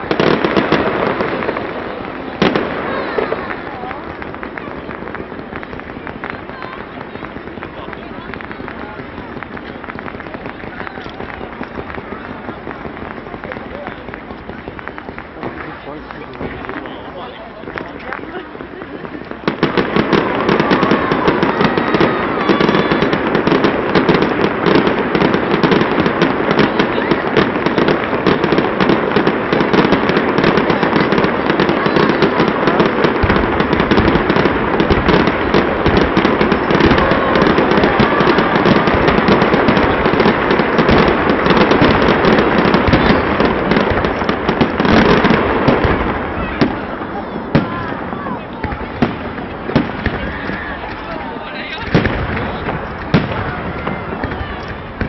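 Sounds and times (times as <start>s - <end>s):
fireworks bangs and crackles: 0.0s - 55.0s
heavy fireworks booms: 0.0s - 55.0s.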